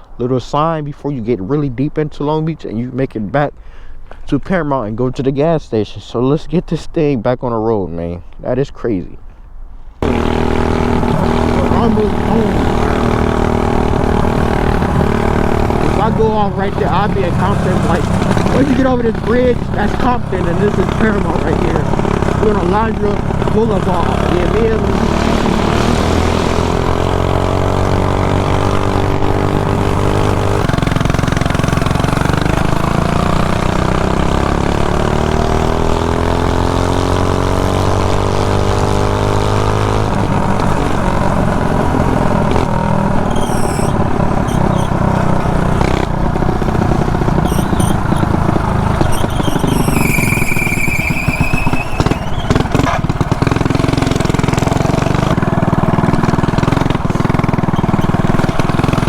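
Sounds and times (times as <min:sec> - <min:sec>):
small bike engine running: 0:10.0 - 0:59.0
high falling squeal: 0:43.2 - 0:45.2, 0:47.4 - 0:52.8.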